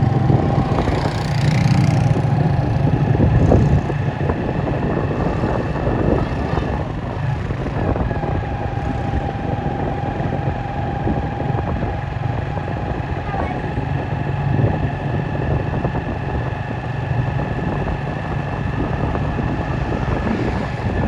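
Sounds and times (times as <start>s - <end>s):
steady whine: 0.0s - 13.6s, 14.5s - 21.0s
traffic going by: 0.0s - 21.0s.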